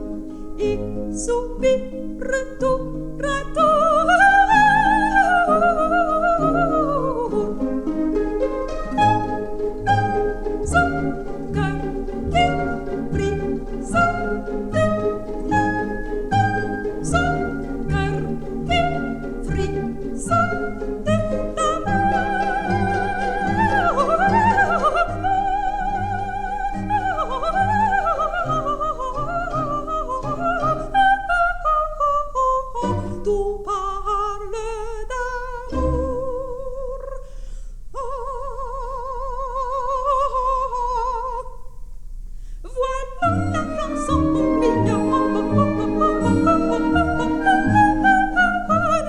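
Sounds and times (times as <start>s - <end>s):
soprano singing opera: 0.0s - 37.4s, 38.0s - 41.7s, 42.6s - 49.0s
orchestral accompaniment: 2.8s - 31.3s, 35.7s - 36.5s, 43.2s - 49.0s.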